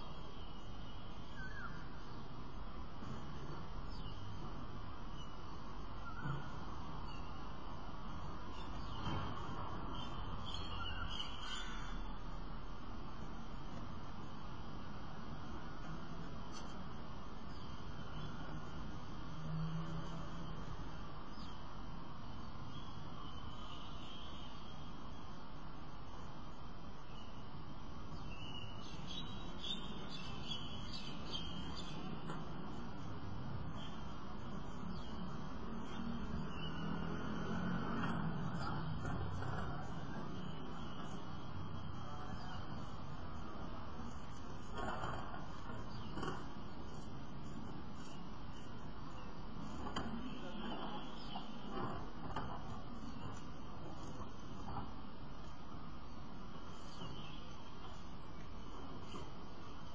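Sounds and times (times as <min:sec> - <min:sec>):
bird chirping: 0:00.0 - 0:02.3, 0:03.0 - 0:12.3, 0:28.1 - 0:54.8, 0:56.7 - 0:59.2
outdoor background hum: 0:00.0 - 0:59.9
steady background noise: 0:00.0 - 0:59.9
faint bird calls: 0:00.4 - 0:02.1, 0:06.0 - 0:07.4.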